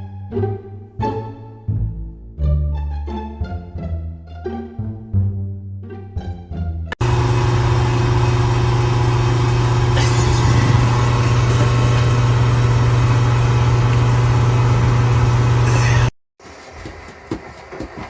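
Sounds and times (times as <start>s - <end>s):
loud machine hum: 7.0s - 16.1s.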